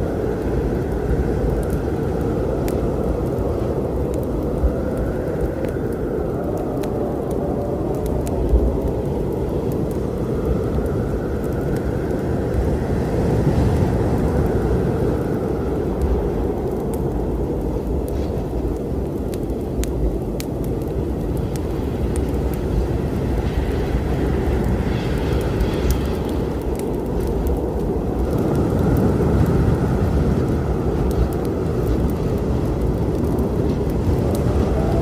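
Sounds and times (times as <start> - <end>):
low rumbling storm: 0.0 - 35.0
wood fire crackling: 0.0 - 35.0.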